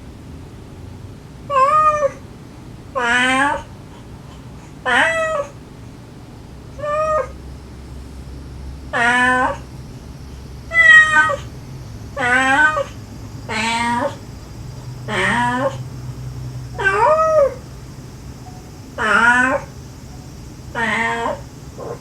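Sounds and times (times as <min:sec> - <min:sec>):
cat meowing: 0:01.5 - 0:02.2, 0:03.0 - 0:03.7, 0:04.8 - 0:05.6, 0:06.8 - 0:07.4, 0:08.9 - 0:09.7, 0:10.7 - 0:11.5, 0:12.2 - 0:14.2, 0:15.1 - 0:15.8, 0:16.7 - 0:17.7, 0:18.4 - 0:22.0.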